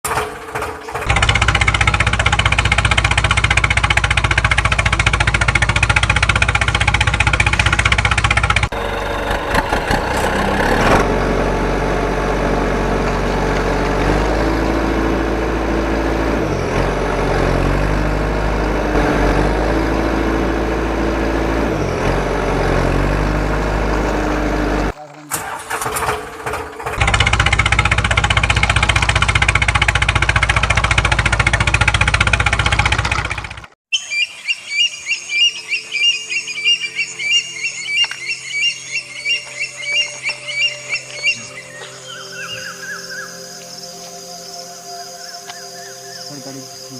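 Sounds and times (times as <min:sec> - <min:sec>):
engine running with fast pulse: 0:00.0 - 0:33.8
different engine sound: 0:00.1 - 0:33.8.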